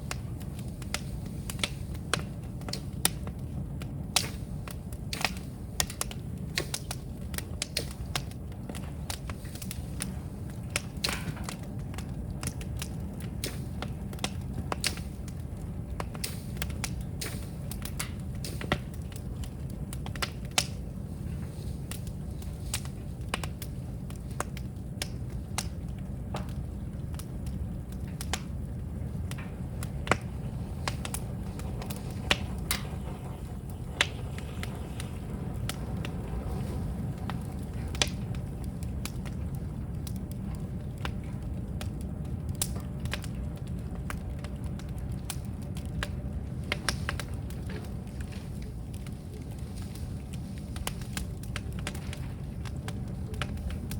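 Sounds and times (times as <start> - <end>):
bamboo fire cracking and popping: 0.0 - 53.9
low steady fire rumble: 0.0 - 53.9.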